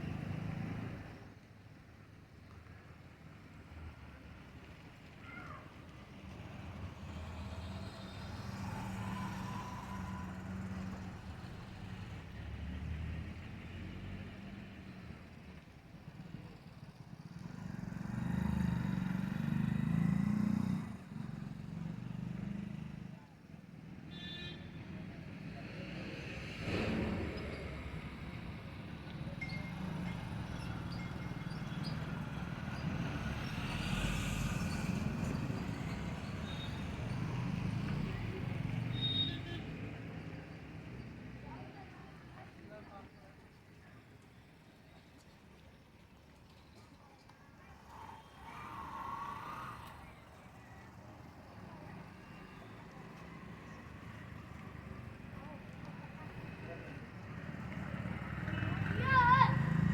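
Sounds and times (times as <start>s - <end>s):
motor vehicle engine rumble: 26.0s - 38.9s
faint thin whistle: 38.9s - 39.6s.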